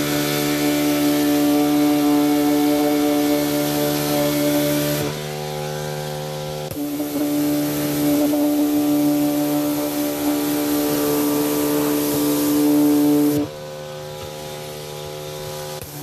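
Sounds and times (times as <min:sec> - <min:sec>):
motor humming: 0:00.0 - 0:16.0.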